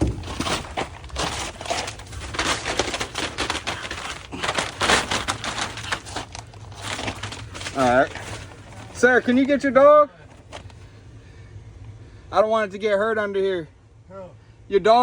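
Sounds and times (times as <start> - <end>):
crunching and crackling rustles: 0.0 - 12.0.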